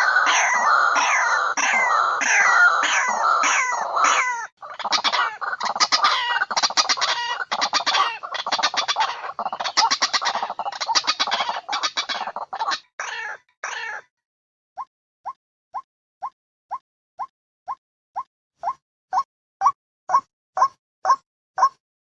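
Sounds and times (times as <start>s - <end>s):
bird harsh croaking calls: 0.0s - 14.1s.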